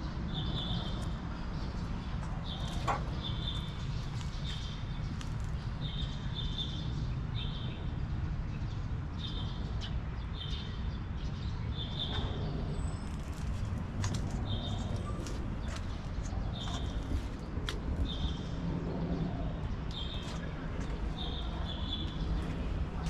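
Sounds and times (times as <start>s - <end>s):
low background rumble: 12.3s - 23.0s.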